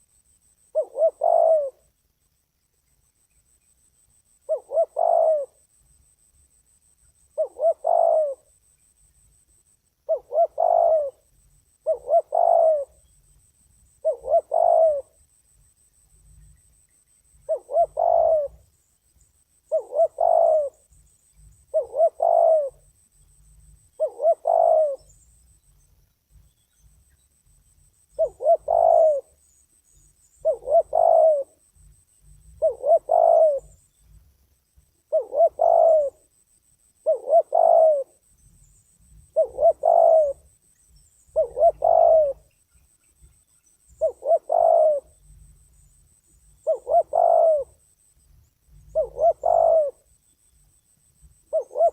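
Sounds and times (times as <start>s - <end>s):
dove cooing: 0.7s - 1.9s, 4.4s - 5.6s, 7.3s - 8.6s, 10.0s - 13.1s, 14.0s - 15.2s, 17.3s - 18.8s, 19.7s - 22.9s, 23.9s - 25.2s, 28.1s - 33.8s, 35.0s - 36.3s, 37.0s - 38.4s, 39.1s - 42.6s, 43.2s - 47.8s, 48.7s - 50.2s, 51.4s - 51.9s.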